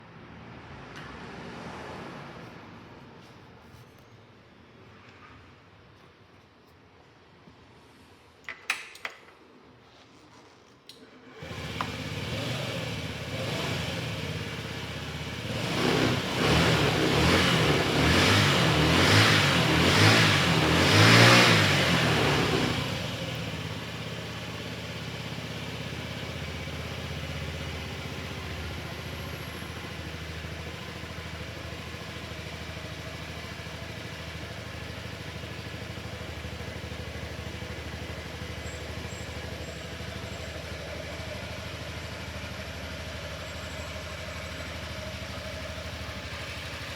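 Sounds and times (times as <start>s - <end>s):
scooter engine revving and idling: 11.3s - 46.9s.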